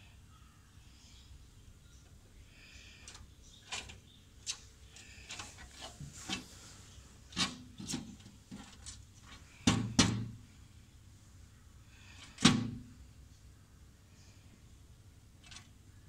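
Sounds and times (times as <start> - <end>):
scraping rub: 3.7 - 9.5.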